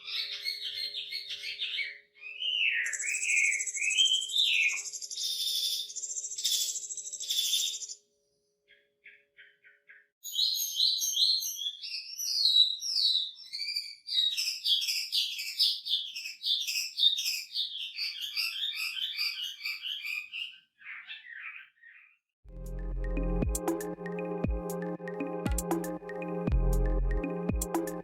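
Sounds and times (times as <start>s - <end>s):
songbird whistling song: 0.0s - 8.0s, 8.7s - 22.2s.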